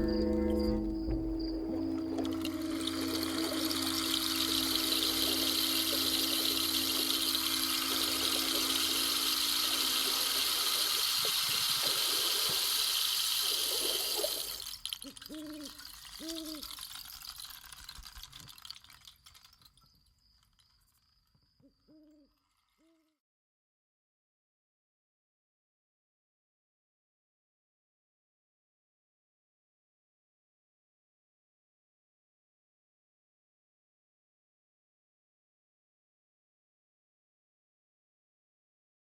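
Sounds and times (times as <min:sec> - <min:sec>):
owl-like hoots: 0:13.7 - 0:16.7, 0:21.6 - 0:23.1.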